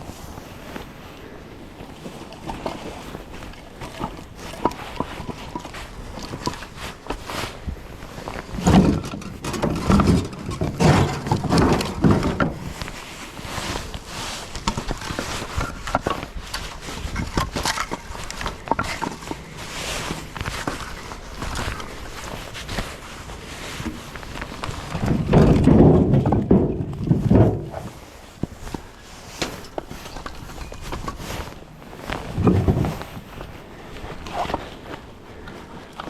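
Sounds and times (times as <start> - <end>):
firewood pieces knocking together: 8.4 - 12.8, 14.6 - 21.9, 24.6 - 28.0.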